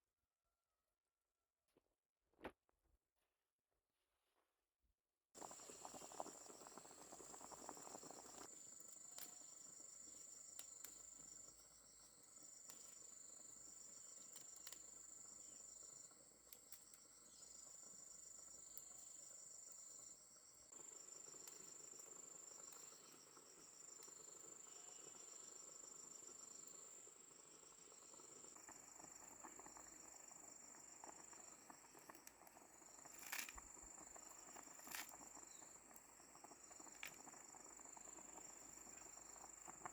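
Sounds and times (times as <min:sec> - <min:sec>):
low pulsing insect chirp: 0:05.4 - 0:39.9
high insect trill: 0:16.9 - 0:39.9.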